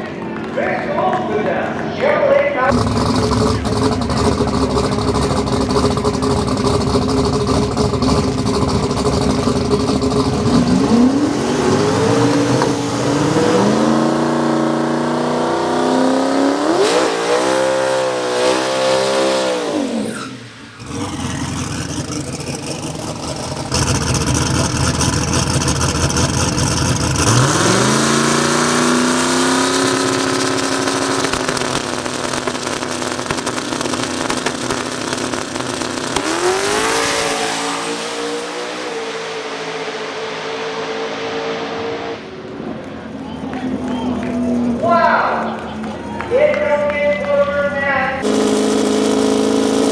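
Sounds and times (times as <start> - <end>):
race car engines revving: 0.0 - 49.9.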